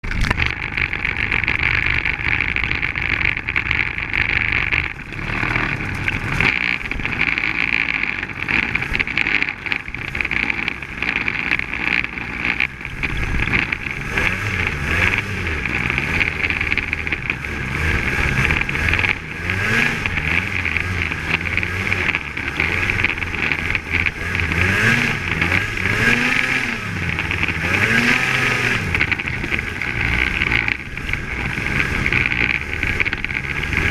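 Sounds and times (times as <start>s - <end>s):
snowmobile engine revving: 0.4s - 33.9s.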